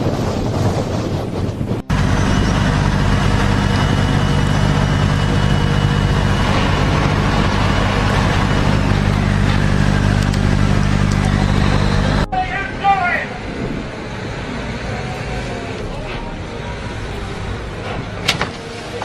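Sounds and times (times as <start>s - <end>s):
engine droning steadily: 1.8s - 19.0s.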